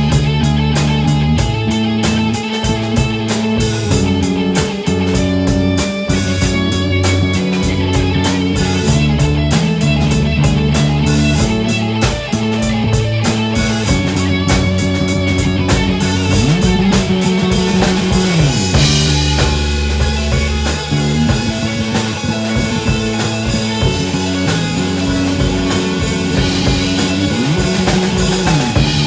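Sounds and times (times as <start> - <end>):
bass guitar: 0.0 - 29.0
drum kit with cymbals: 0.0 - 29.0
electric guitars: 0.0 - 29.0
cymbal crash: 13.3 - 29.0.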